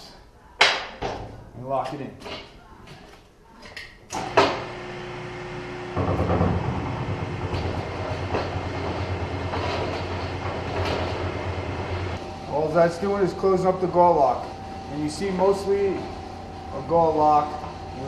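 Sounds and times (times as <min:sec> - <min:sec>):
machine motor whirring and rumbling: 0:04.2 - 0:18.0
rollers knocking on metal seam: 0:05.9 - 0:12.2.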